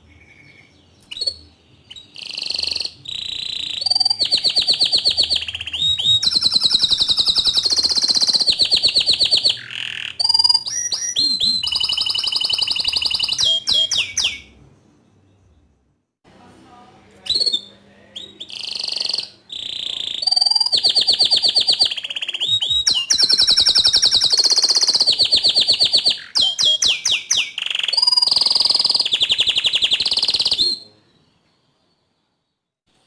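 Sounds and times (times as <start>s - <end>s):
canary singing trills: 0.0s - 15.8s, 17.2s - 32.4s.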